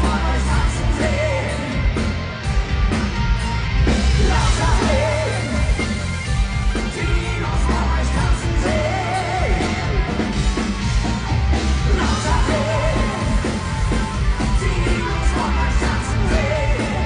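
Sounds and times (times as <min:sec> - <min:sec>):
person singing: 0:00.0 - 0:02.0, 0:04.1 - 0:06.0, 0:06.8 - 0:10.3, 0:11.7 - 0:17.0
heavy rock band playing: 0:00.0 - 0:17.0.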